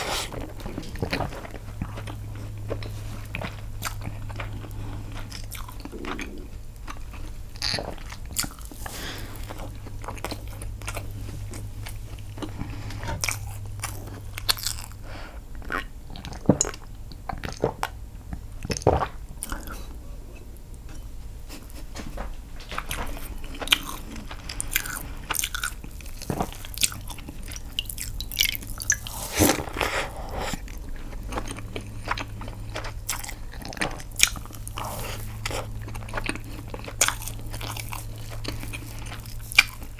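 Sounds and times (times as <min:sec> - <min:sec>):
wet chewing and mouth smacks: 0:00.0 - 0:15.0, 0:22.8 - 0:39.9
low steady hum: 0:00.0 - 0:39.9.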